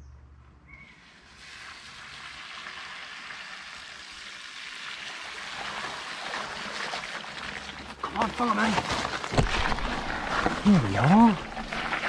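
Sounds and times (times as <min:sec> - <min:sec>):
water rushing and splashing: 0:09.3 - 0:12.0.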